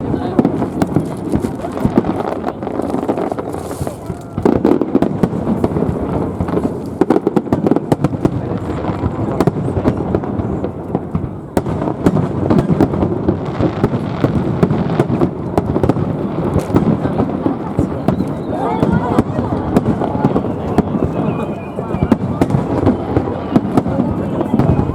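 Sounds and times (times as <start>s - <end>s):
fireworks booms and cracks: 0.0s - 24.9s.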